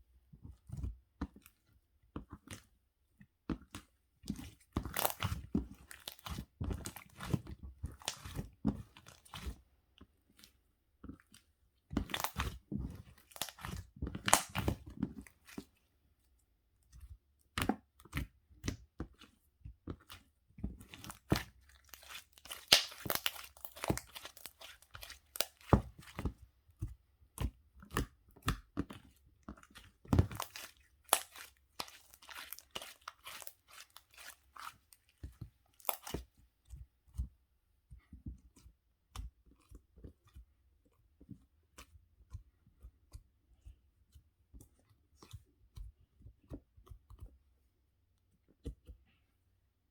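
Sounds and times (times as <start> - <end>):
crunching and crinkling: 4.8 - 7.4, 20.8 - 26.4, 29.1 - 36.3.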